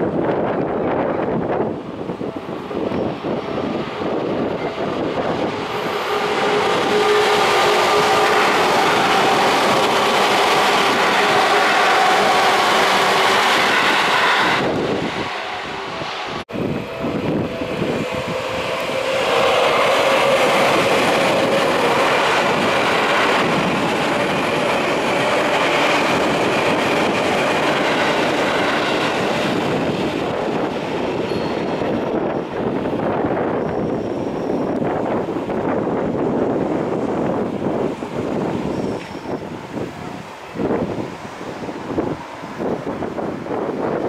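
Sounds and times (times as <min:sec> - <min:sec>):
rising whine: 0:02.2 - 0:32.3
train wheels clattering over rails: 0:17.2 - 0:35.7.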